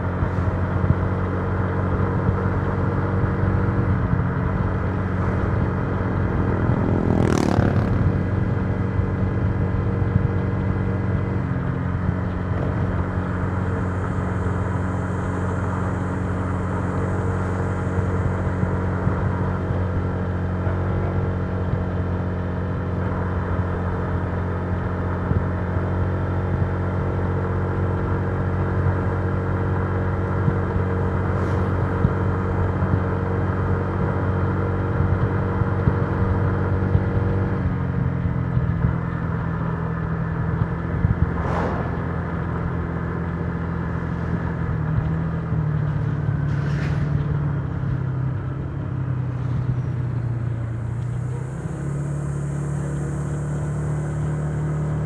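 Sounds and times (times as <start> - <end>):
scooter engine cruising: 3.4 - 13.5
brief short noises: 41.4 - 42.4.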